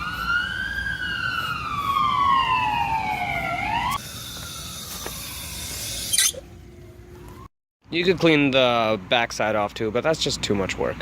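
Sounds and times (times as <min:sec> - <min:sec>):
siren wailing: 0:00.0 - 0:07.5.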